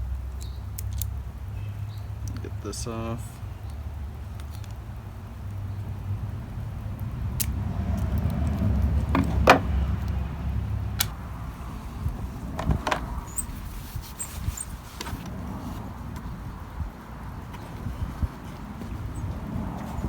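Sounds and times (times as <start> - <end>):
plastic parts clicking and knocking: 7.4 - 10.2.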